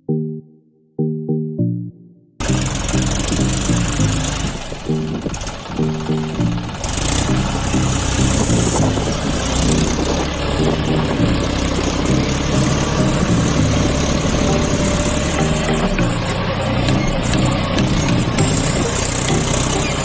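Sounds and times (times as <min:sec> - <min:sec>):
engine idling: 0:02.4 - 0:20.0.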